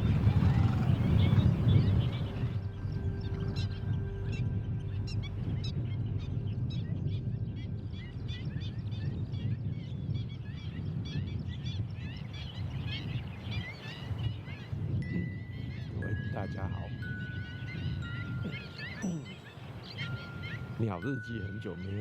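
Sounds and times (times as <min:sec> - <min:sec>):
steady low rumble: 0:00.0 - 0:13.6
small birds chirping: 0:00.0 - 0:22.0.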